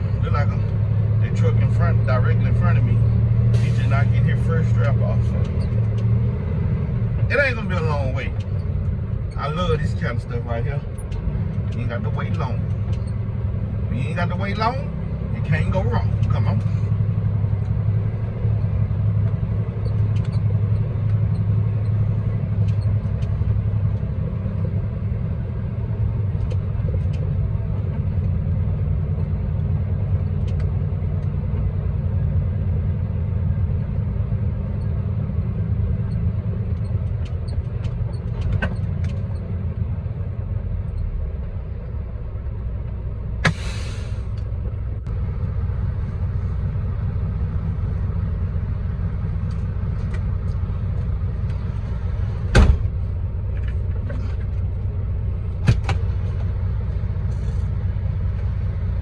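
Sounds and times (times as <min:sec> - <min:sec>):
diesel truck engine rumble: 0:00.0 - 0:59.0
short hiss: 0:43.4 - 0:44.4.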